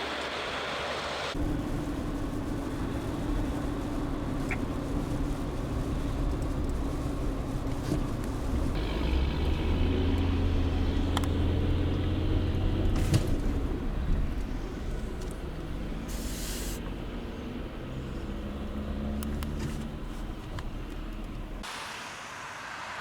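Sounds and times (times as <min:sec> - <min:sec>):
vehicle engine running: 0:00.0 - 0:21.8
short hiss: 0:16.1 - 0:16.8.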